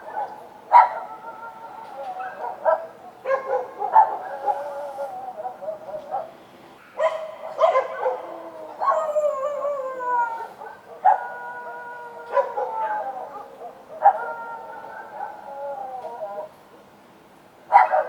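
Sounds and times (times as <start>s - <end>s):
dogs barking: 0.0s - 1.4s, 2.2s - 6.4s, 7.0s - 9.2s, 10.6s - 15.6s, 17.7s - 18.0s
dogs howling: 0.0s - 6.3s, 7.0s - 16.6s.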